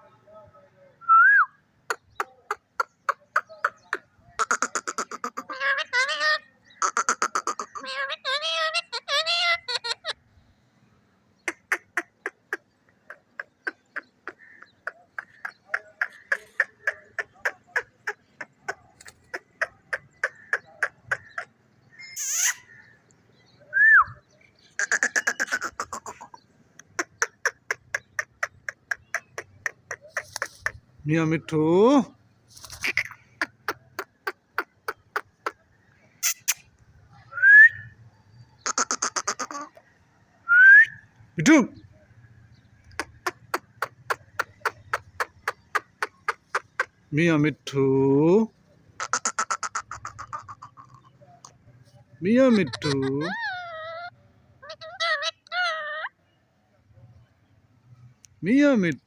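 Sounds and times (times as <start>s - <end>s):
parrot chirps: 1.9s - 10.2s, 11.5s - 22.8s, 36.2s - 36.7s, 52.5s - 56.3s.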